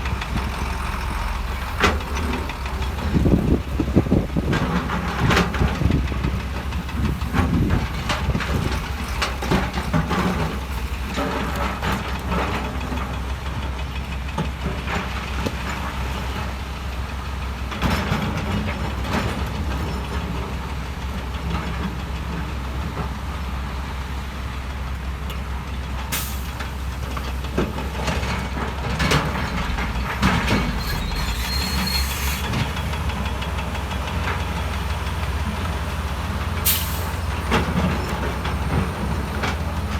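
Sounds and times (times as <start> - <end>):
diesel machinery running: 0.0 - 39.9.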